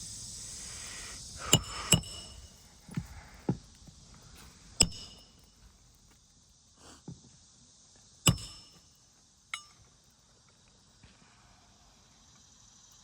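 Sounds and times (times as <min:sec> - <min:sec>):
hammer striking metal tool: 0:01.5 - 0:02.5, 0:04.8 - 0:05.5, 0:08.3 - 0:08.9, 0:09.5 - 0:09.9.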